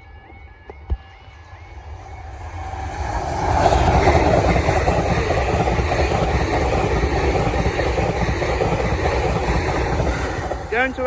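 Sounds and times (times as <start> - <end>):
passenger train passing: 0.0 - 11.0.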